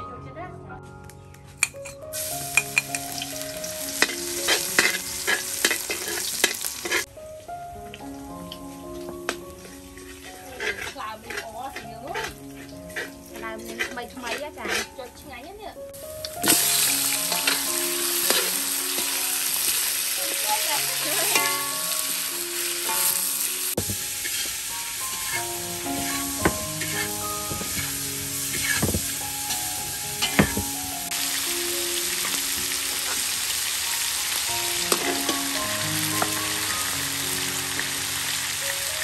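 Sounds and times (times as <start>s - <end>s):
soft background music: 0.0s - 39.0s
metal spatula scraping wok: 1.7s - 7.1s, 9.6s - 15.4s, 16.4s - 31.2s, 34.7s - 37.0s
meat sizzling in a wok: 2.0s - 7.3s, 7.9s - 14.8s, 16.0s - 39.0s.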